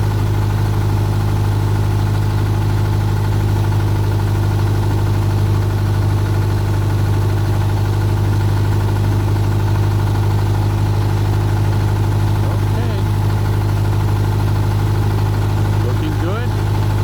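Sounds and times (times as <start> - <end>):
low machine hum: 8.2 - 17.0.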